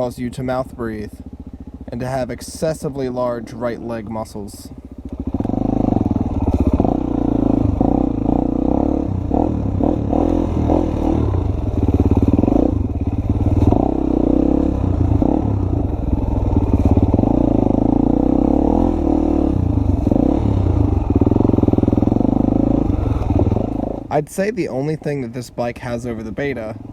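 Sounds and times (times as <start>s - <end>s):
dirt bike engine revving: 4.8s - 24.2s.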